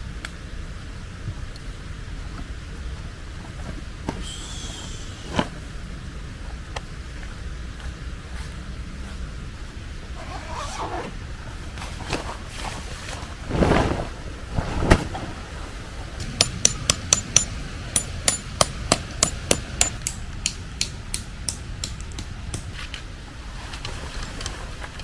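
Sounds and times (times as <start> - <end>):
rustle: 0.0 - 16.4, 22.6 - 25.0
hammer striking metal: 16.4 - 21.2.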